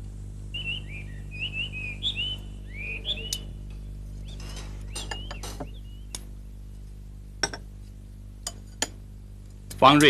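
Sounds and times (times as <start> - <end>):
steady low hum: 0.0 - 10.0
birds chirping and whistling: 0.5 - 6.8.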